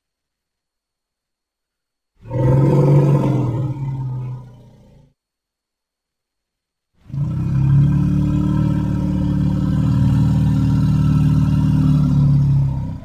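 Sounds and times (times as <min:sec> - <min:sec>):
cartoon creature low growl: 0:07.1 - 0:13.0.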